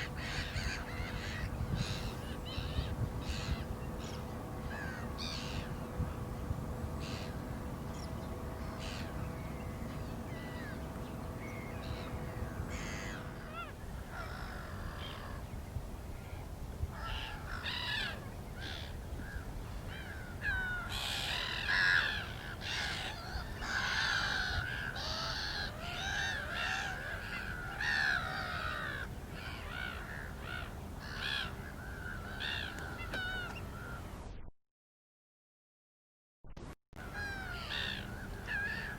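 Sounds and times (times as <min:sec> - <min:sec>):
birds yelping calls: 0:00.0 - 0:15.5, 0:17.0 - 0:34.1, 0:37.0 - 0:38.9
steady low rumble: 0:00.0 - 0:25.9.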